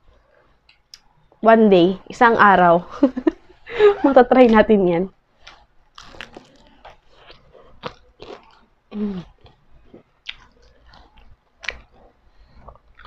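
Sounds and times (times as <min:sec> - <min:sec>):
crunchy chewing: 0:05.4 - 0:13.0
wet mouth smacks: 0:10.2 - 0:10.6.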